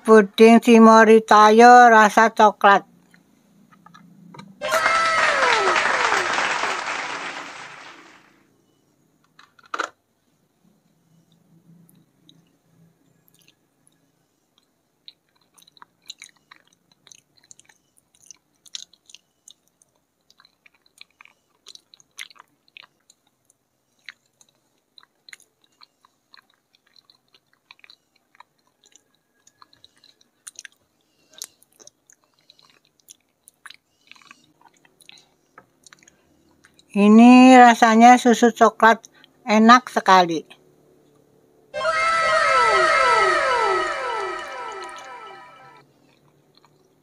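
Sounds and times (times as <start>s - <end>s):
mouth chewing soft pudding: 10.8s - 37.0s, 45.8s - 47.0s.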